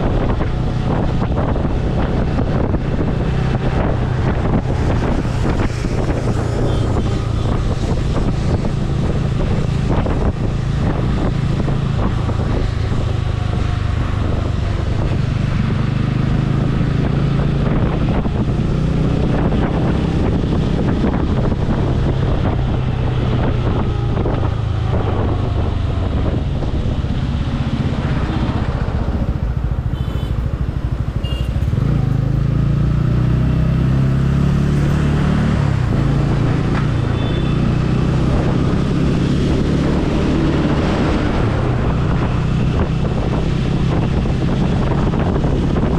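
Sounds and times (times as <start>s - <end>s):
motorcycle engine running: 0.0s - 35.0s
wind noise on microphone: 0.0s - 45.9s.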